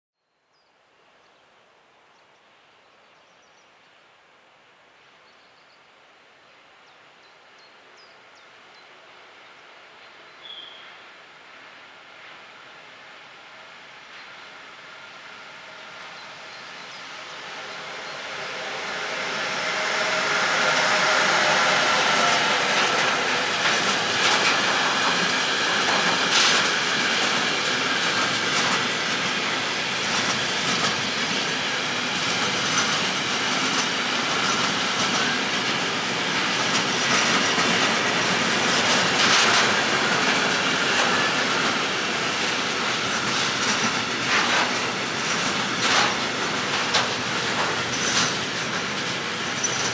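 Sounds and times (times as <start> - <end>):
freight train passing: 8.2 - 49.9
wheels clicking over rail joints: 22.4 - 31.4, 32.3 - 49.9.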